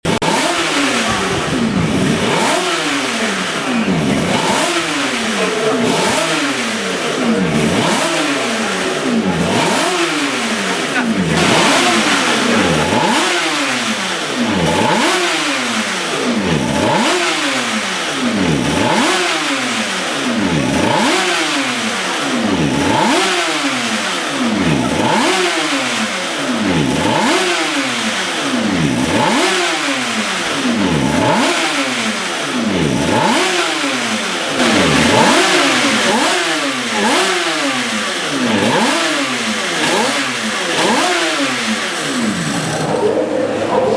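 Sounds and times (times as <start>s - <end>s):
two-stroke motorcycle engine revving: 0.0s - 43.7s.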